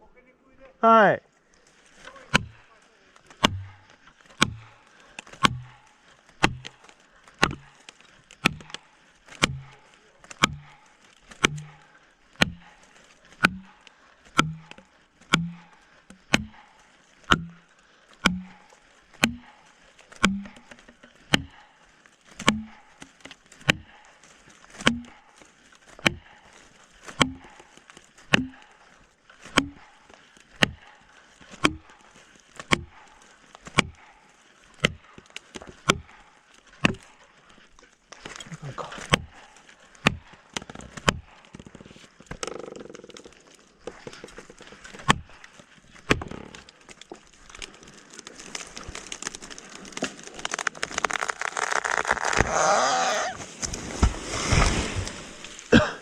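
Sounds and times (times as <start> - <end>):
blows on a felling wedge: 1.9 - 24.1, 34.8 - 56.0.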